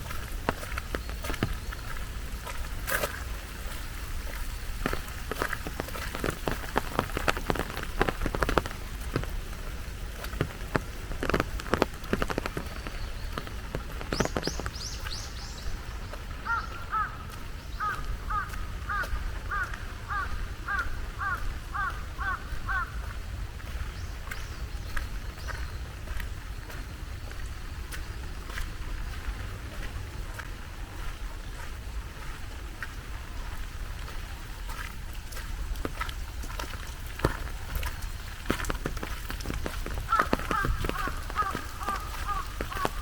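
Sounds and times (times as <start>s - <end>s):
loud close drips: 0.0s - 43.0s
rain falling: 0.0s - 43.0s
bird calling evenly spaced notes: 12.2s - 22.9s.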